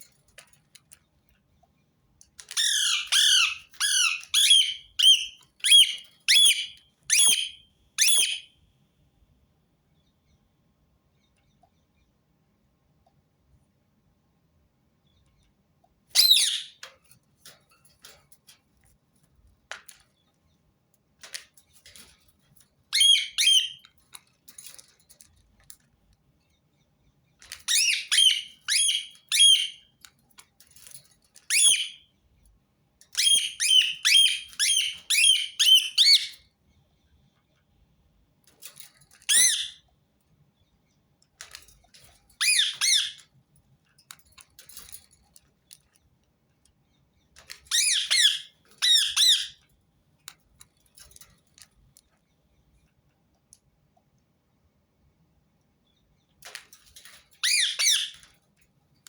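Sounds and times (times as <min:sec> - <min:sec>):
parakeet squawking: 0:02.6 - 0:08.4, 0:16.2 - 0:16.7, 0:23.0 - 0:23.8, 0:27.7 - 0:29.8, 0:33.2 - 0:36.3, 0:39.3 - 0:39.8, 0:42.4 - 0:43.2, 0:47.7 - 0:49.6, 0:57.4 - 0:58.2.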